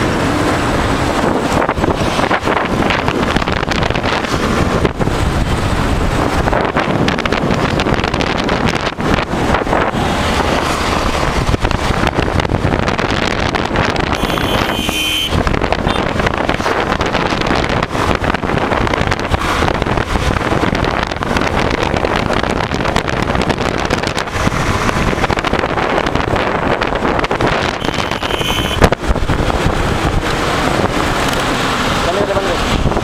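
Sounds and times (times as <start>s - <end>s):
heavy wind on microphone: 0.0s - 33.0s
motorcycle engine: 0.0s - 33.0s
road noise: 0.0s - 33.0s
high-pitched tone: 27.8s - 28.9s.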